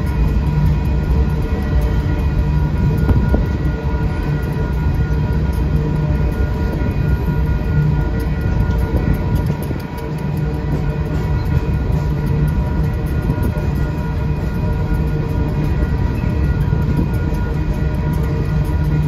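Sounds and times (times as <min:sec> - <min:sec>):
train wheels rattling on rails: 0:00.0 - 0:19.0.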